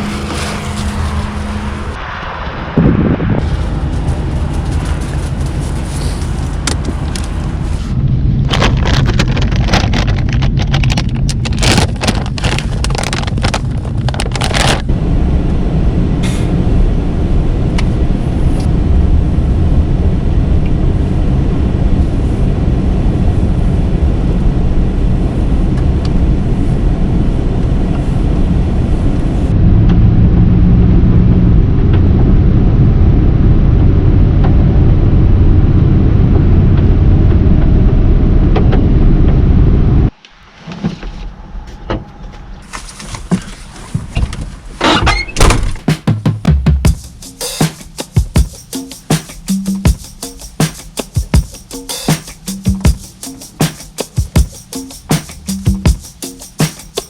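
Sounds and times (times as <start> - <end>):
van engine and road noise: 0.0 - 57.0
sharp knocks and rattles: 8.5 - 14.7.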